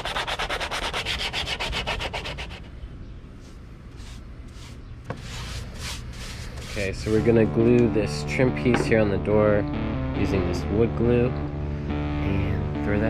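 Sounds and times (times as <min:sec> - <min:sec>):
sandpaper strokes on wood: 0:00.0 - 0:02.7, 0:04.0 - 0:07.4.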